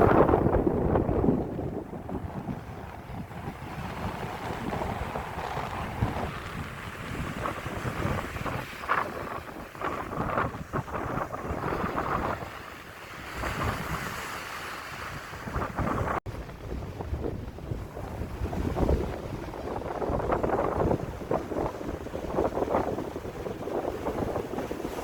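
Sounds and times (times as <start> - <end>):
sea waves rushing: 0.0 - 25.0
wind buffeting microphone: 0.0 - 25.0.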